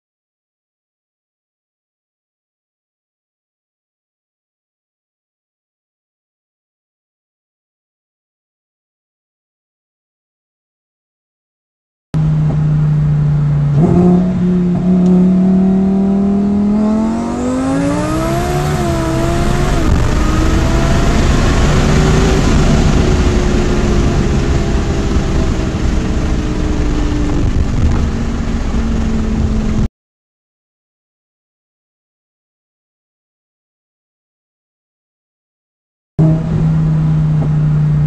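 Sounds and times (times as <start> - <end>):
car engine accelerating: 12.2 - 29.9, 36.2 - 38.0
loud rough wind rush: 16.4 - 29.9.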